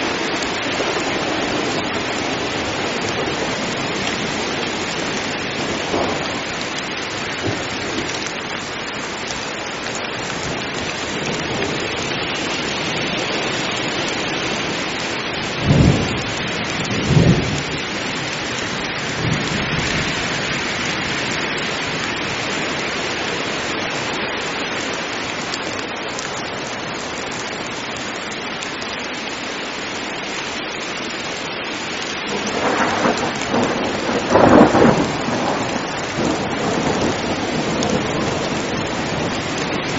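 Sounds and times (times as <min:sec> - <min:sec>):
heavy rain falling: 0:00.0 - 0:39.9
thunder claps: 0:00.8 - 0:08.2, 0:15.6 - 0:17.8, 0:32.3 - 0:39.9.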